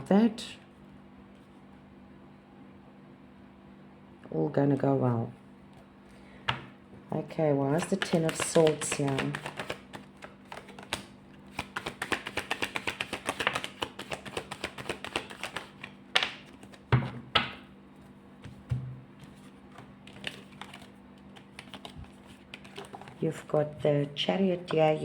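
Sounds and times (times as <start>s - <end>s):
cards being shuffled: 7.7s - 17.2s, 18.0s - 23.6s.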